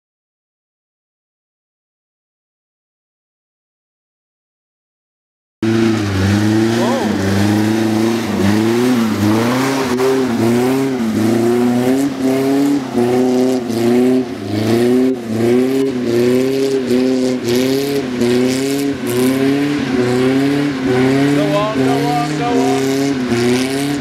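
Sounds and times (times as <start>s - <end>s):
car engine labouring: 5.6s - 24.0s.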